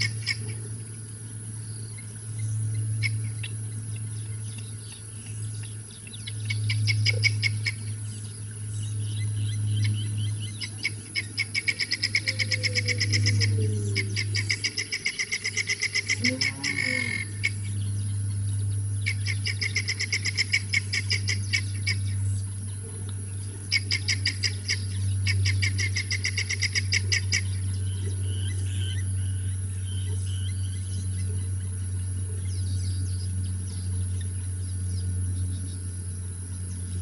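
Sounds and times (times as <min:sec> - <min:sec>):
steady low hum: 0:00.0 - 0:37.0
bird high chirps: 0:03.0 - 0:22.5.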